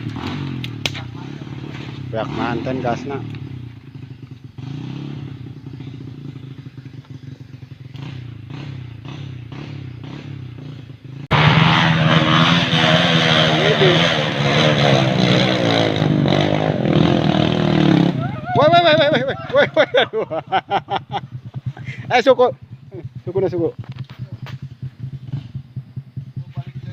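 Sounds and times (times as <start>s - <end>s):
motorcycle engine idling and revving: 0.0s - 26.9s.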